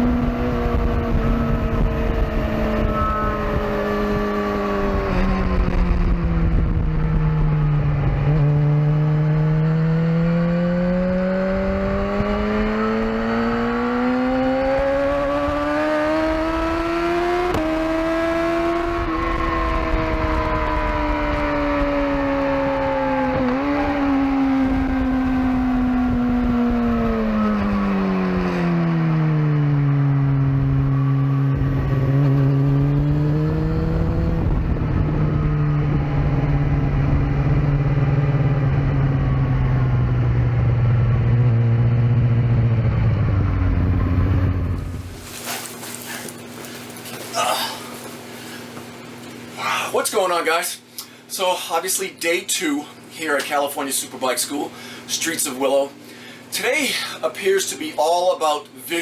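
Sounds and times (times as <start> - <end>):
wind rush: 0.0 - 8.3, 43.7 - 45.6
sport bike engine at speed: 0.0 - 49.6.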